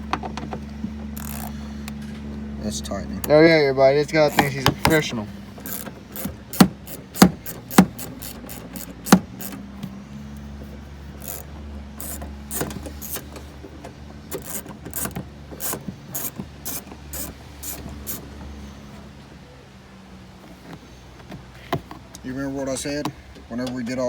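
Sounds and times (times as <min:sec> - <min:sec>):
hand tools clicking on bolts: 0:00.1 - 0:02.1, 0:04.3 - 0:10.4, 0:11.2 - 0:18.4
ratchet wrench: 0:01.1 - 0:01.7, 0:04.3 - 0:09.7, 0:11.2 - 0:13.5, 0:14.3 - 0:18.3.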